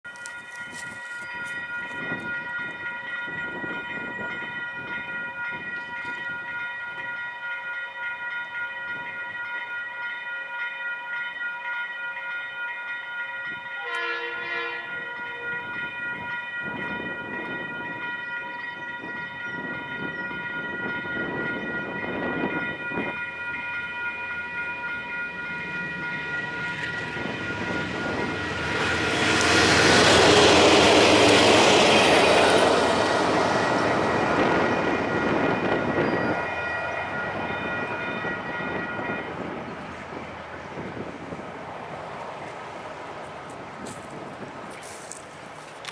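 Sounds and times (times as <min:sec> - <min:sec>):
level crossing bells ringing: 0:00.0 - 0:40.7
oncoming train: 0:00.0 - 0:45.9
train horn blast: 0:13.8 - 0:15.9.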